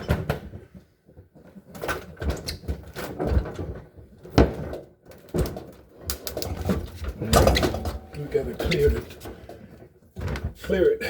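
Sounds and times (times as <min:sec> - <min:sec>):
refrigerator knocking and scraping: 0:06.4 - 0:10.9.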